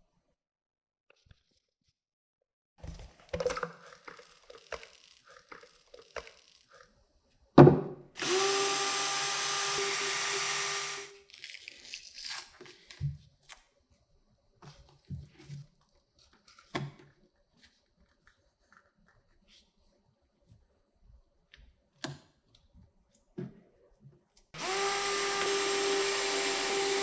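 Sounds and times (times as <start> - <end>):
small power tool running: 2.8 - 6.8, 8.2 - 11.2, 24.6 - 27.0
parts clicking and knocking: 2.8 - 6.9.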